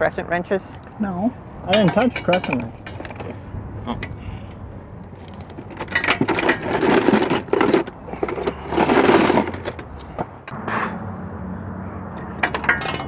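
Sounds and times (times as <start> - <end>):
metal hand tools clattering: 1.6 - 3.4, 5.2 - 10.2, 12.4 - 13.0.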